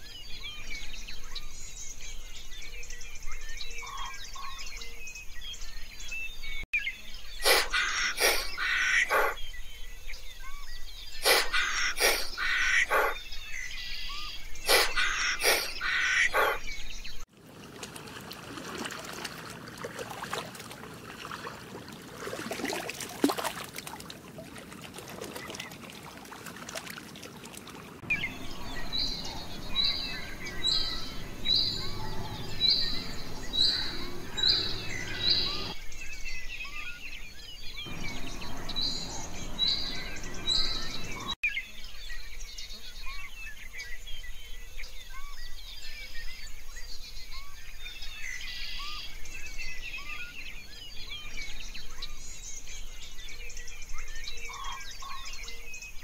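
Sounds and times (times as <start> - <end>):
faint bird chirps: 0.0 - 17.2, 28.1 - 56.0
bird repeating short high call: 7.4 - 9.4, 11.2 - 13.2, 14.2 - 16.7
steady rushing hiss: 11.2 - 12.4, 14.7 - 15.8.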